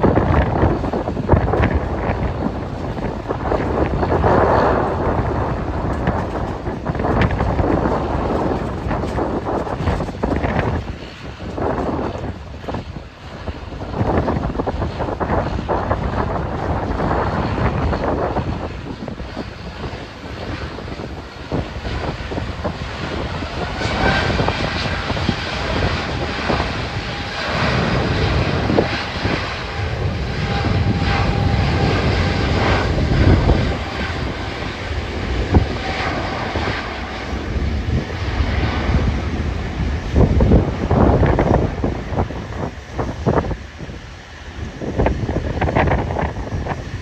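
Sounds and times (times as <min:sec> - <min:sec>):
airliner engines whining: 0:00.0 - 0:47.0
wind buffeting microphone: 0:00.0 - 0:47.0.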